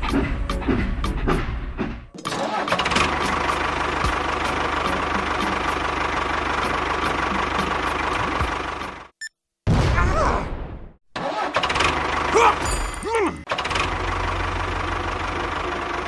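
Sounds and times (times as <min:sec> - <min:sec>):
small engine running: 0:02.4 - 0:09.1, 0:11.5 - 0:16.0.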